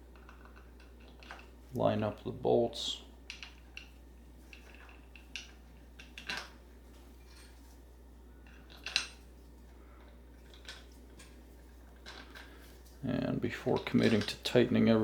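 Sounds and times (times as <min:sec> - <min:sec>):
bolts and nuts clicking and clinking: 0:00.1 - 0:01.6, 0:03.3 - 0:06.6, 0:08.4 - 0:09.3, 0:10.3 - 0:12.7, 0:13.4 - 0:15.0.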